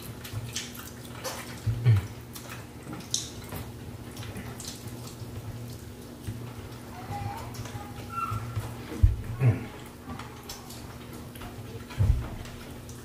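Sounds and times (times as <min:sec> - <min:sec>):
wet chewing and lip-smacking: 0:00.0 - 0:06.8.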